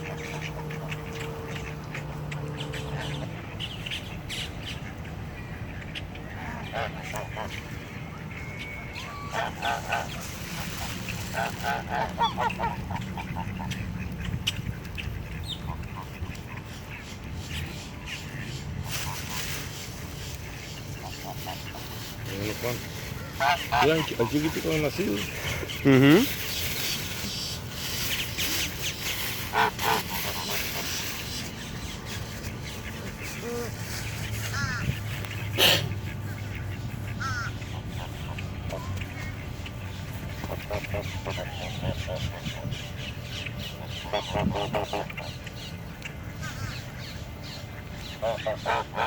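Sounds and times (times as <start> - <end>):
birds honking calls: 0.0 - 49.0.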